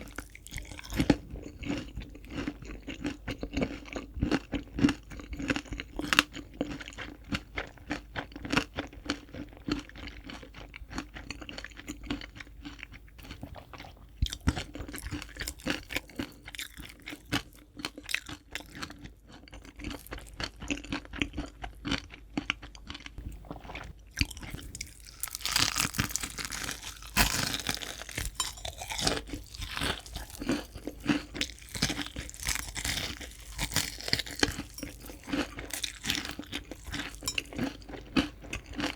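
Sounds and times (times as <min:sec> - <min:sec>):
crunching and chewing fried chicken: 0:00.0 - 0:38.9.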